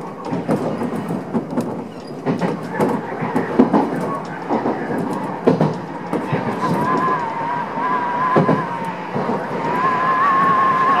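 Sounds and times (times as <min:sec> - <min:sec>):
wheels clattering over rail joints: 0:00.0 - 0:07.6
electric train running: 0:00.0 - 0:11.0.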